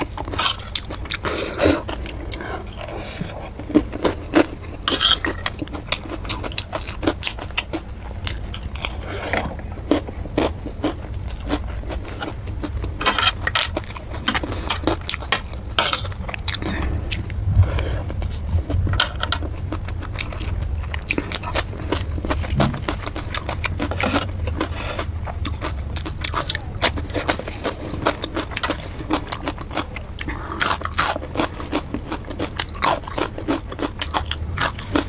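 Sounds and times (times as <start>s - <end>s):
chewing and crunching noodles: 0.0s - 35.0s
low steady hum: 0.0s - 35.0s
metal spoon scraping a plate: 4.8s - 5.6s.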